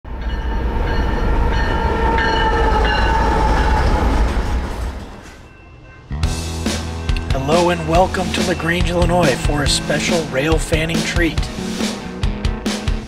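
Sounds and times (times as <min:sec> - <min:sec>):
train heavy low rumble: 0:00.0 - 0:12.4
high ringing tones: 0:00.1 - 0:04.2, 0:05.2 - 0:06.2.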